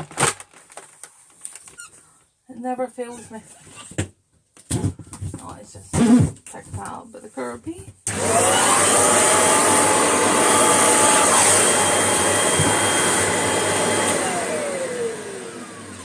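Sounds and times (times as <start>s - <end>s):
vacuum cleaner whining: 8.0s - 16.0s.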